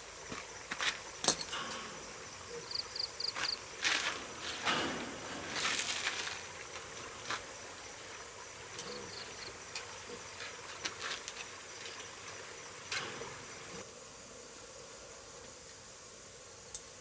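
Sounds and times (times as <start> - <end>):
insects buzzing: 0.0 - 17.0
rustling: 1.5 - 8.2.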